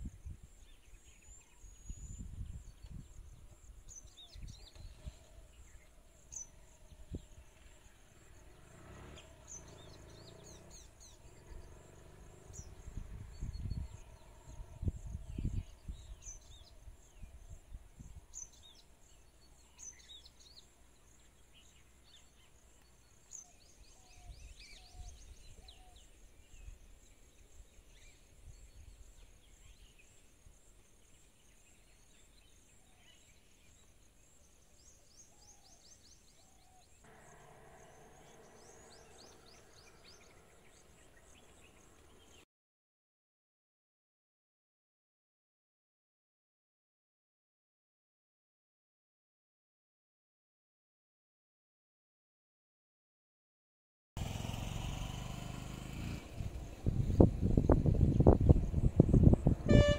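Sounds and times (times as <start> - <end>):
small birds chirping: 0.0 - 42.4
low rumble: 56.3 - 59.9.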